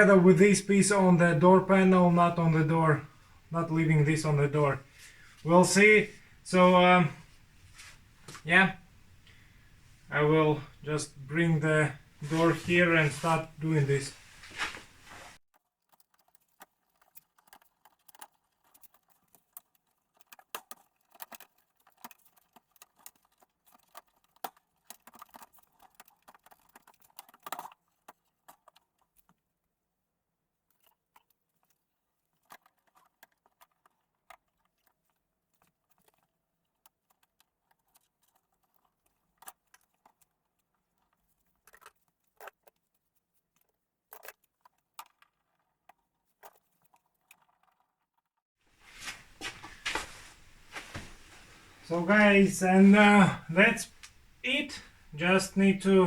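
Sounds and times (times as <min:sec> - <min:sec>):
small parts clicking and rattling: 0:15.5 - 0:29.8, 0:30.6 - 0:48.3.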